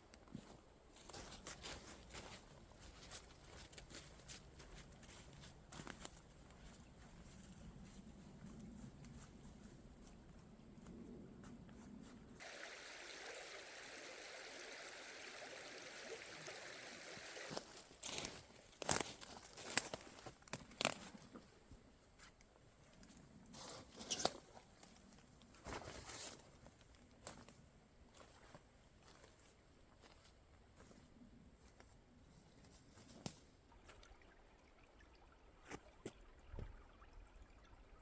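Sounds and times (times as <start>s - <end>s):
footsteps crunching dry forest litter: 0.3s - 10.2s, 17.4s - 21.5s, 25.5s - 33.4s.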